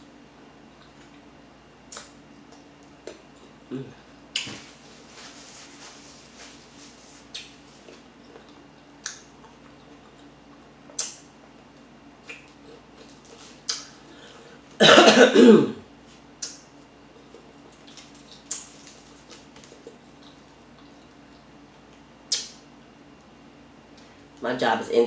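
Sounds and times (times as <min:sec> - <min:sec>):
mouth clicks and smacks chewing: 0:12.2 - 0:13.9, 0:22.3 - 0:22.6
loud cough: 0:14.8 - 0:15.8.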